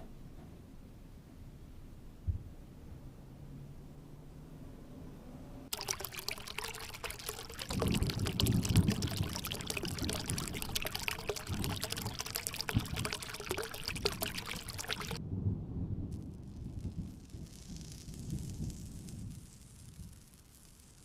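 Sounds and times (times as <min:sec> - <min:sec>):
water rushing and splashing: 0:05.7 - 0:15.2.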